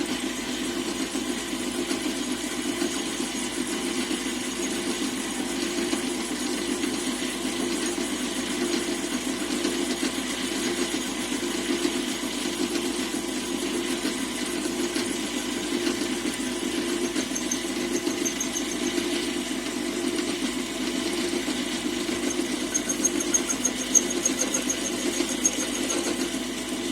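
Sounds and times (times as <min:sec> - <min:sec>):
lathe machine hum: 0:10.9 - 0:26.9.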